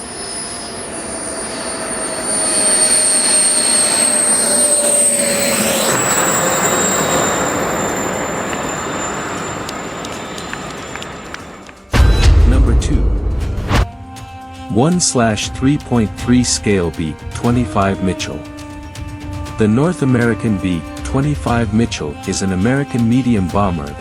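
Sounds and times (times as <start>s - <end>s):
model jet turbine whine: 0.0s - 11.9s.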